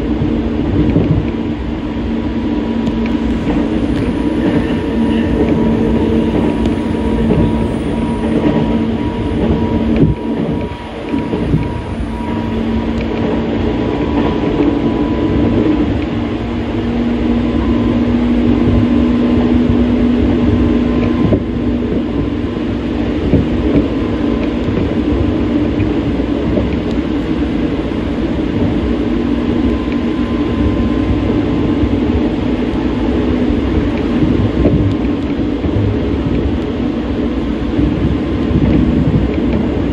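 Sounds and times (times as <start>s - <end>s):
constant hum: 0.0s - 39.9s
train wheels rumbling on rail: 0.0s - 39.9s.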